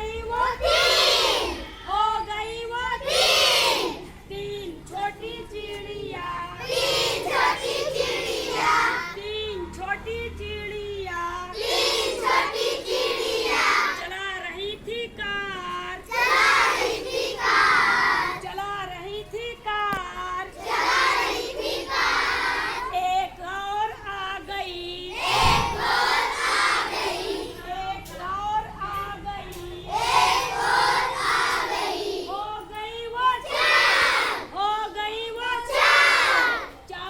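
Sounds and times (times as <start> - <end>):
child singing: 4.9 - 9.6.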